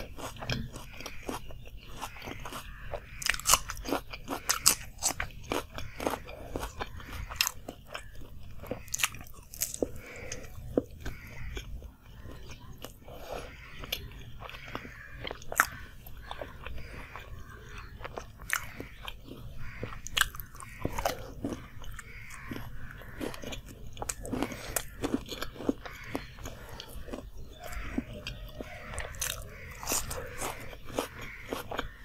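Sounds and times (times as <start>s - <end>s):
pastry crunching while chewing: 0.0s - 32.0s.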